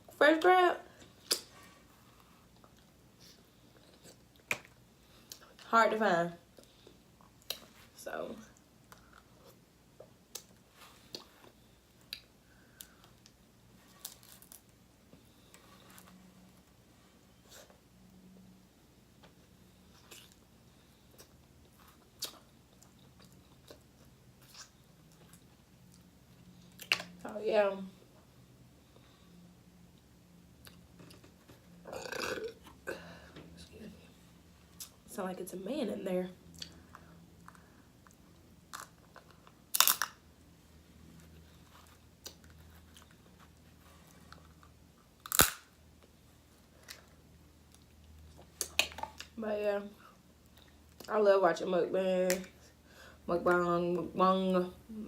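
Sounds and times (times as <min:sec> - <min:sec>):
crab shell crunching and cracking: 0:38.7 - 0:40.2, 0:45.2 - 0:45.8.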